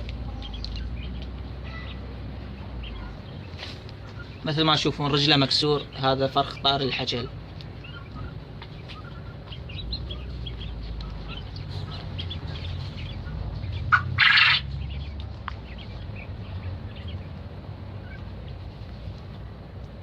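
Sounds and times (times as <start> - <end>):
chicks chirping and peeping: 0.0 - 20.0.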